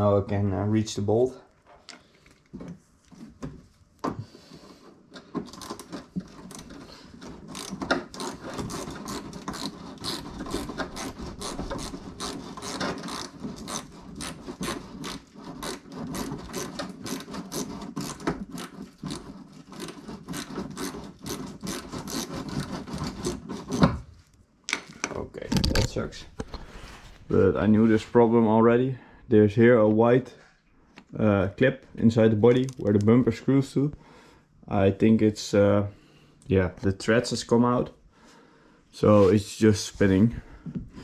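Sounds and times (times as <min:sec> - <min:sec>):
hand ratchet clicking: 0:05.4 - 0:22.4.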